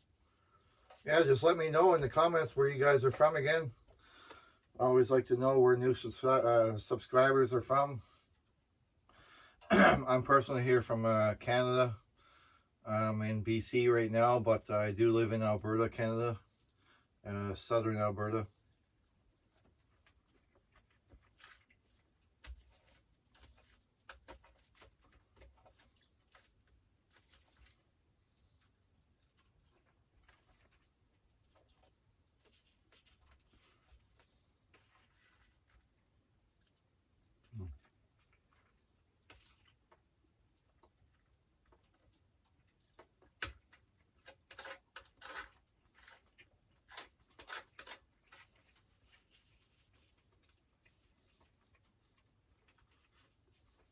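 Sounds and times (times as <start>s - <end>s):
faint small clicks and taps: 28.6s - 53.9s.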